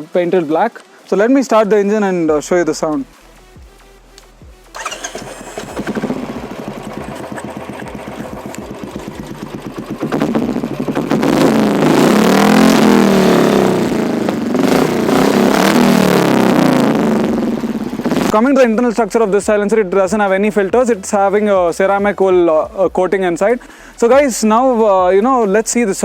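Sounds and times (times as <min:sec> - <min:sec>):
motorcycle engine idling: 0:04.4 - 0:18.3
motorcycle engine revving loudly: 0:04.8 - 0:18.4.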